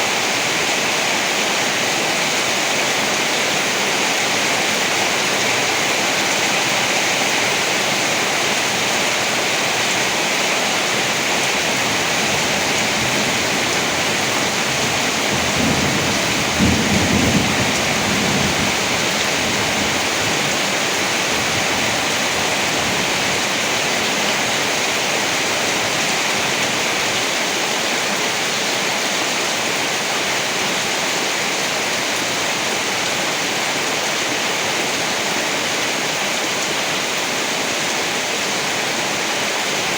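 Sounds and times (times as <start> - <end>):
heavy rain: 0.0 - 39.9
low roll of thunder: 14.8 - 20.0.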